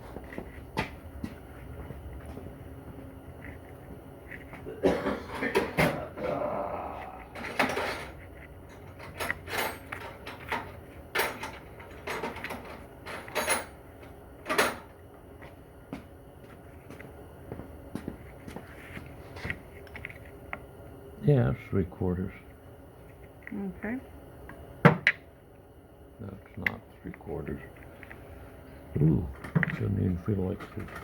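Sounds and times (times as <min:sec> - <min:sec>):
hand tools clanking: 0:07.2 - 0:13.7.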